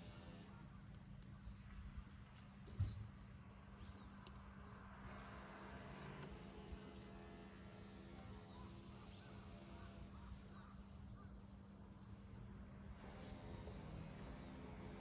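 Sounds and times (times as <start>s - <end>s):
faint fire crackles: 0.0s - 15.0s.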